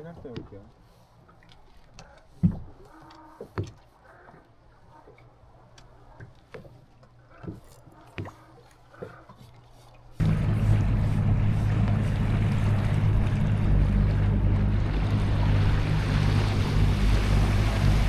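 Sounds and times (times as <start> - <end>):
boat engine running: 7.2 - 18.0
rushing water: 7.4 - 18.0.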